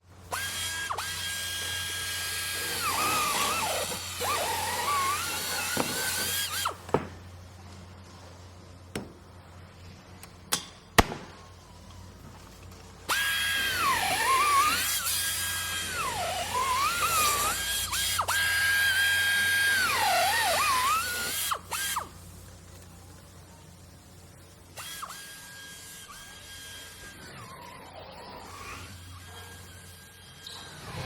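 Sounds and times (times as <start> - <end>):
electric power drill whining: 0.3 - 6.8, 13.1 - 22.1, 24.8 - 31.0.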